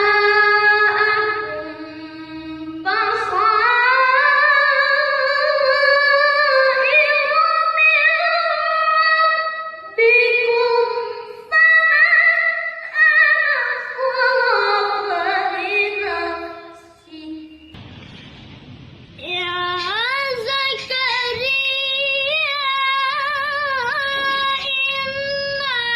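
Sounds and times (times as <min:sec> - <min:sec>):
boy reciting melodically: 0:00.0 - 0:17.8, 0:19.2 - 0:25.9
short rush of noise: 0:17.8 - 0:21.0.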